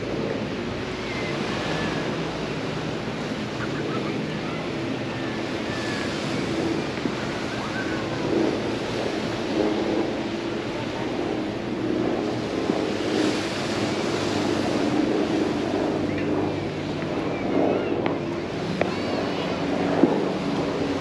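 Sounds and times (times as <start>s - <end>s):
faint voices: 0.0s - 21.0s
surf washing on shore: 0.0s - 21.0s.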